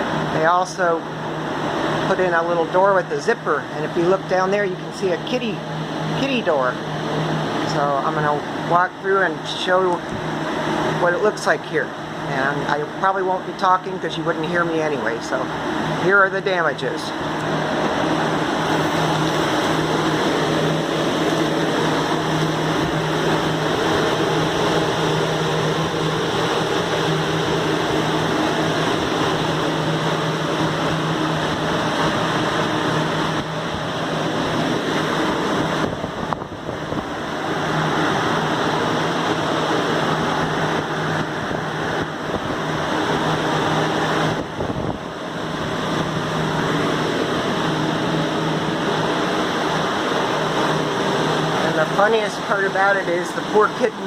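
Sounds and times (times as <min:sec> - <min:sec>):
blower fans running: 0:00.0 - 0:54.0.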